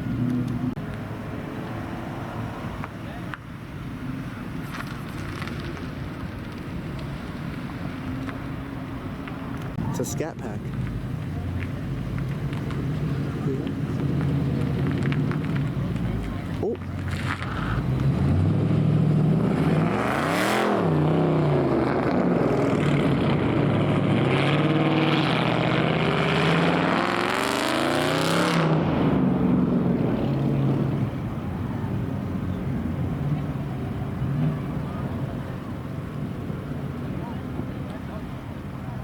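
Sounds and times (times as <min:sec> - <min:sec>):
car engine revving: 0:09.5 - 0:37.8.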